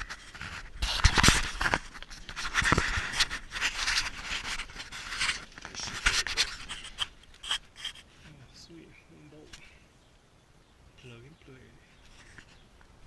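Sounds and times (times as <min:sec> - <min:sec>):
scraping and rubbing: 0:00.0 - 0:08.4, 0:12.0 - 0:12.7.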